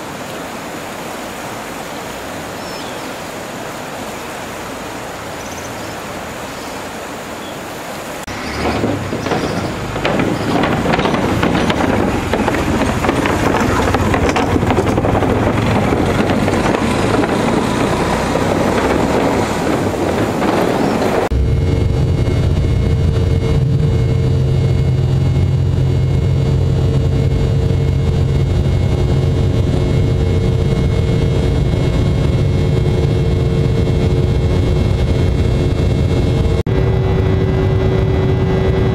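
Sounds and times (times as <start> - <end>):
low engine drone: 3.6 - 38.9
wind noise on microphone: 8.3 - 38.9.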